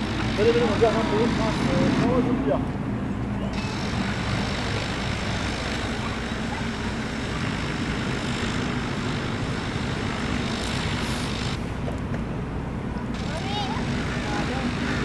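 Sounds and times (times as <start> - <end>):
low engine drone: 0.0 - 15.0
loud rushing hiss: 3.5 - 11.8, 13.1 - 15.0.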